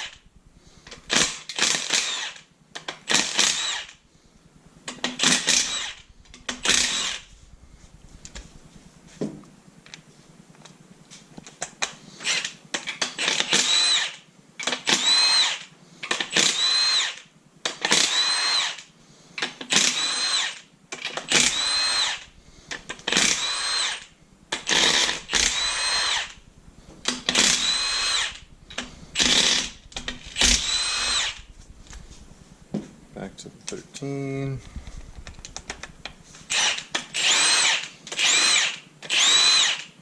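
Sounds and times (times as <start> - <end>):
power drill whining: 0.0 - 0.3, 0.9 - 2.5, 3.1 - 4.1, 5.1 - 7.5, 12.2 - 17.2, 17.8 - 32.4, 34.6 - 40.0.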